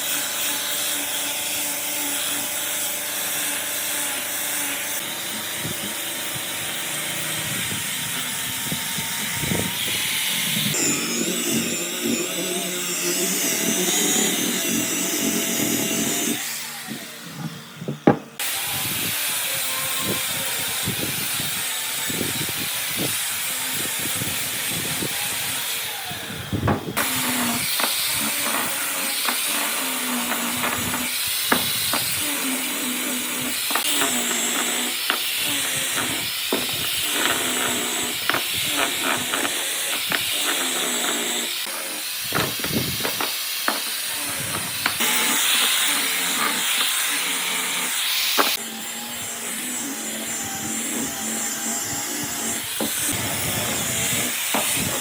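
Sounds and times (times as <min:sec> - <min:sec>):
power tool hissing: 0:00.0 - 0:55.0
knocks and clicks on wood: 0:17.4 - 0:18.4.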